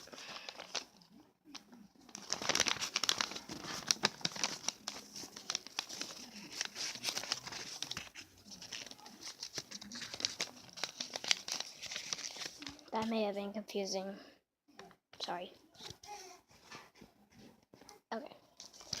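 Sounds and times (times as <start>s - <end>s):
paper crinkling and rustling: 0.0s - 13.1s, 18.5s - 19.0s.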